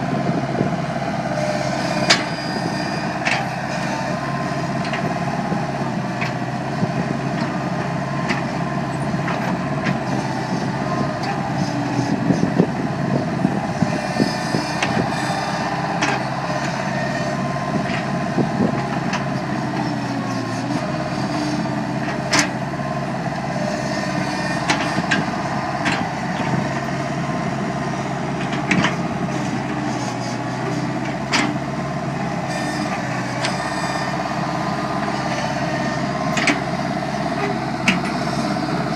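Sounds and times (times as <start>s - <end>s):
loader engine running: 0.0s - 38.9s.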